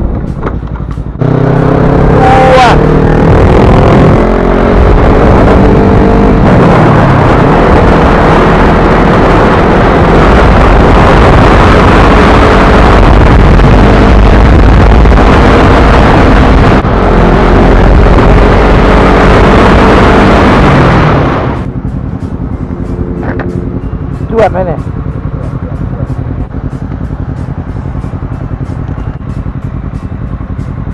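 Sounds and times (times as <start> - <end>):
wind buffeting microphone: 3.1 - 21.9
faint motorcycle engine: 21.6 - 30.9.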